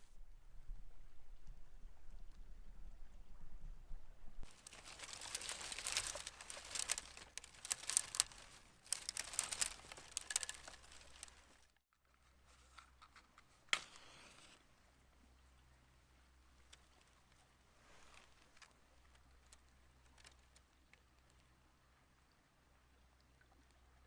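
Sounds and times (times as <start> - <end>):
crinkling and rustling: 4.4 - 14.6, 17.8 - 20.6.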